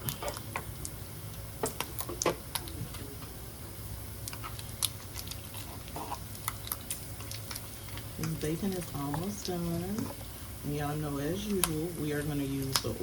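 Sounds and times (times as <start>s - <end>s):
bacon frying and popping: 0.0s - 2.8s, 4.1s - 10.0s
low steady hum: 0.0s - 13.0s.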